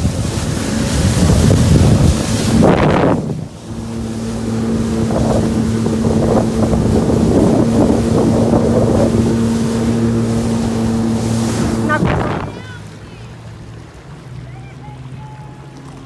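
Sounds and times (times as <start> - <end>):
wind rush: 0.0 - 12.8
water splashing around hull: 0.0 - 16.0
watercraft engine running: 0.0 - 16.0.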